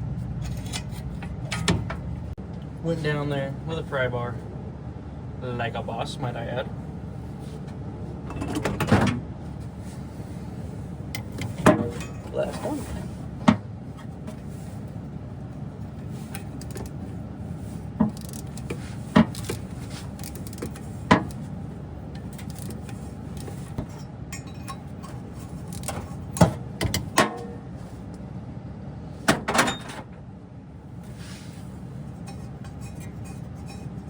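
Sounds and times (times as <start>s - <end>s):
hand tools clinking on metal: 24.3s - 24.9s.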